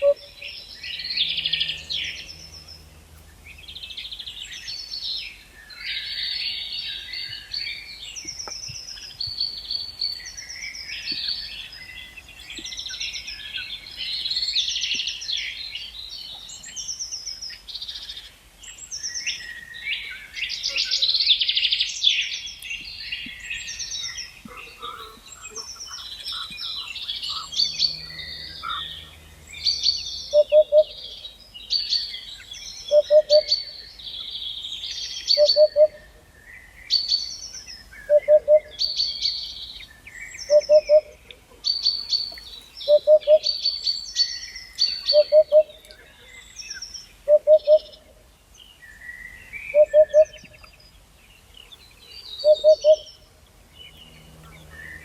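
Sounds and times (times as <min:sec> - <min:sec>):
birds singing and chirping: 0:00.0 - 0:55.0.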